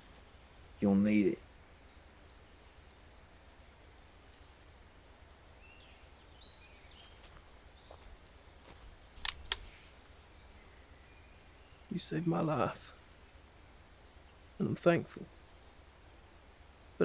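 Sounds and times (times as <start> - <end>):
faint birdsong: 0.0 - 17.0
sharp clicks: 9.2 - 9.7.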